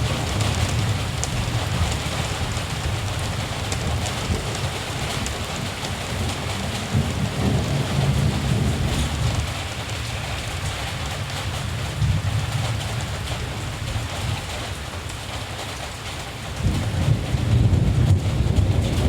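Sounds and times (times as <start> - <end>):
distant thunder rumble: 0.0 - 14.8, 16.5 - 19.0.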